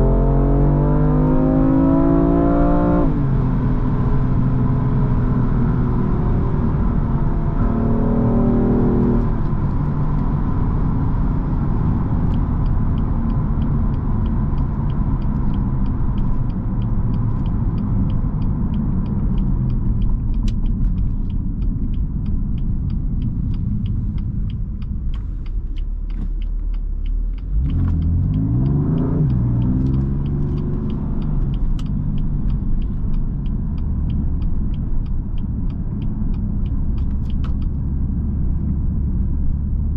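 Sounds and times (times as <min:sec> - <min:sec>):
car engine while driving: 0:00.0 - 0:39.9
low road rumble: 0:00.0 - 0:39.9
faint regular ticking: 0:11.8 - 0:39.9.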